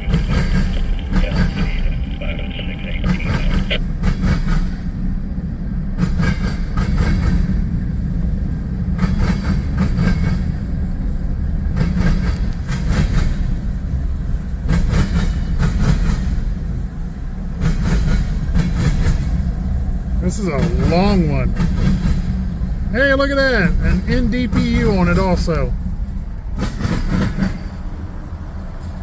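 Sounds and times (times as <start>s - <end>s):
freight train rumbling past: 0.0s - 29.0s
train wheel clatter: 4.0s - 5.0s, 5.9s - 7.9s, 8.8s - 22.9s, 23.6s - 29.0s.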